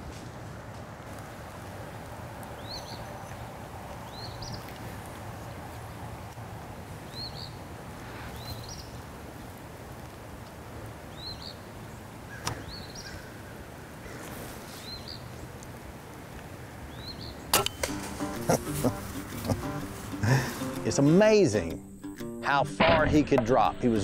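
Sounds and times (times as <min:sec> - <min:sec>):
sharp double crack: 0:17.5 - 0:19.8.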